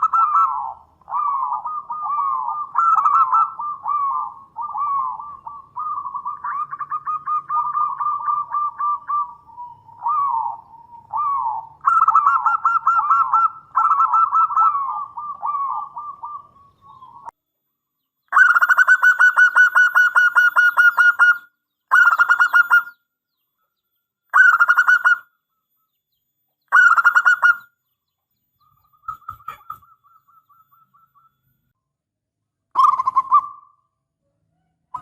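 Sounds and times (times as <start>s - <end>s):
dove rapid staccato cooing: 0.0s - 16.6s, 18.3s - 22.9s, 24.3s - 25.3s, 26.7s - 27.7s, 28.8s - 31.3s, 32.8s - 33.8s.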